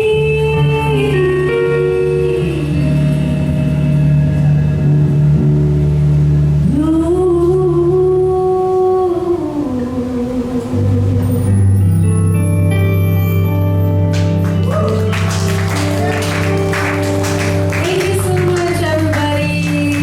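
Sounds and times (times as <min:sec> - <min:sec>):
person singing long notes: 0:00.0 - 0:04.6
sustained musical accompaniment: 0:10.7 - 0:20.0.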